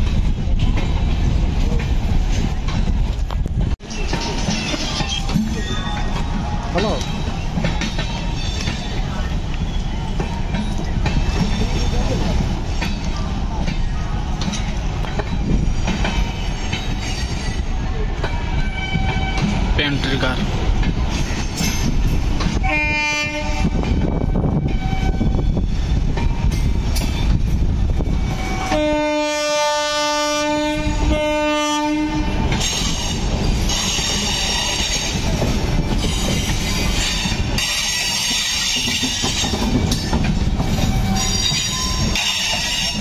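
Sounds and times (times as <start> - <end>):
train wheels rumbling on rails: 0.0 - 43.0
wheels screeching on rails: 0.0 - 43.0
train horn: 22.6 - 25.5, 28.3 - 32.4.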